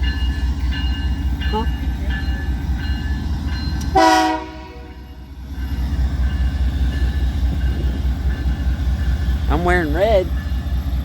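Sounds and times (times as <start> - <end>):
train rumbling past: 0.0 - 11.0
train horn blast: 3.9 - 5.1.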